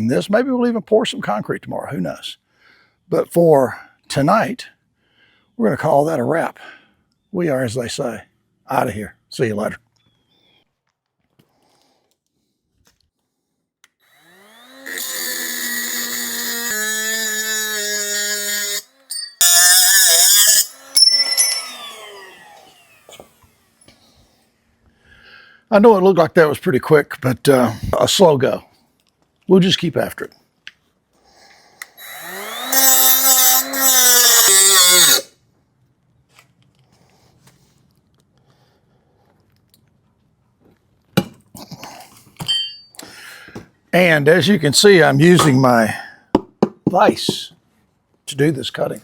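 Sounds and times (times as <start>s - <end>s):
angle grinder cutting rebar: 14.1s - 24.0s, 31.8s - 35.3s.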